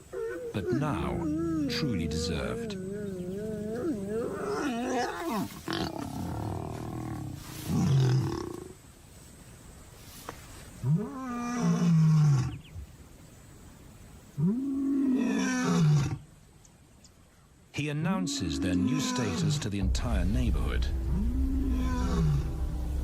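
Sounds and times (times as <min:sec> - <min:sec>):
lion roaring: 0:20.6 - 0:23.0.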